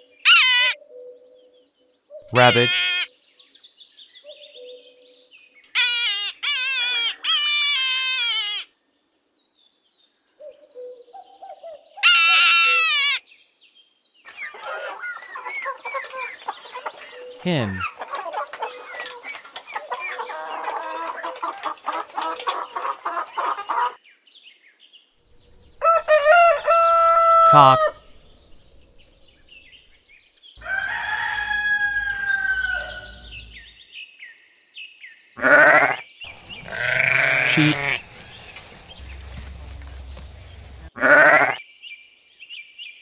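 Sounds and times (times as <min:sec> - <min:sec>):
hens clucking: 0:02.3 - 0:02.7, 0:14.3 - 0:24.0, 0:30.6 - 0:33.6, 0:36.3 - 0:41.3
rooster crowing: 0:25.8 - 0:28.0, 0:30.6 - 0:33.7.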